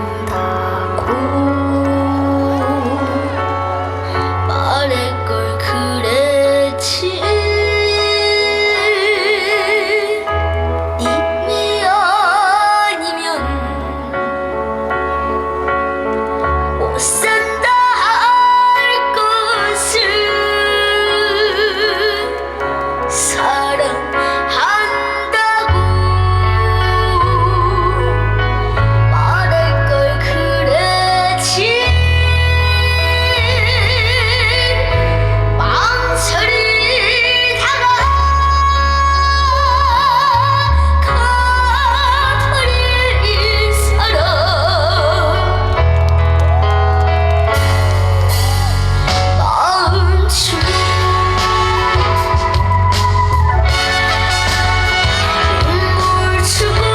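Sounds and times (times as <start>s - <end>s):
person singing with vibrato: 0.0s - 14.8s, 48.4s - 56.9s
backing music with heavy bass: 0.0s - 56.9s
trot music: 50.6s - 56.9s.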